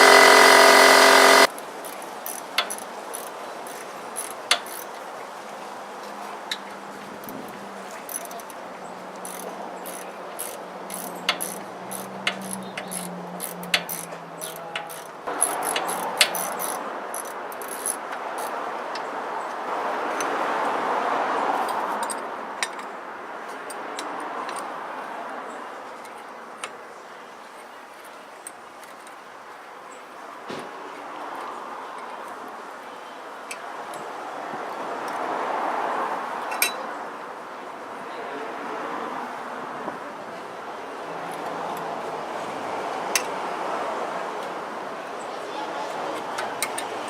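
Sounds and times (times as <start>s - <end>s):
metal hand tools clicking: 9.3s - 18.5s.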